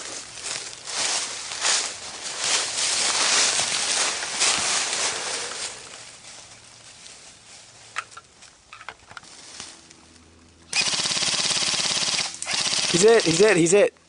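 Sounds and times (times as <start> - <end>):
rustling through brush: 0.0 - 13.6
airsoft gun full-auto fire: 10.7 - 13.6.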